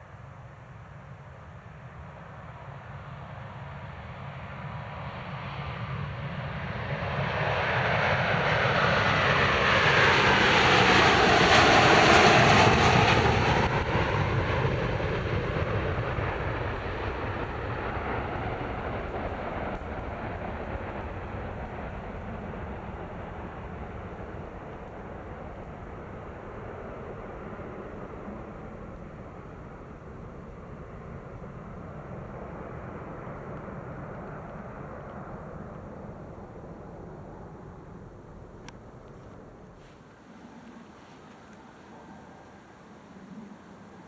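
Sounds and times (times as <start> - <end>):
jet airliner taking off: 1.8 - 44.0.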